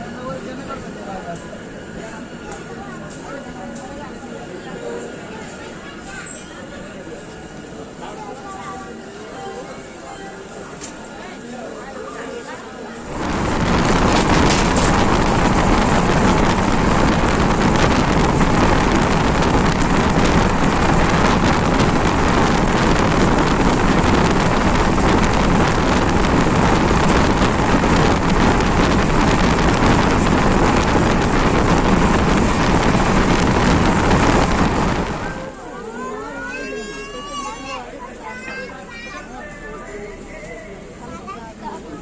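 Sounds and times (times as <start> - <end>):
passenger train running: 0.0 - 42.0
wind buffeting the microphone: 13.1 - 35.5.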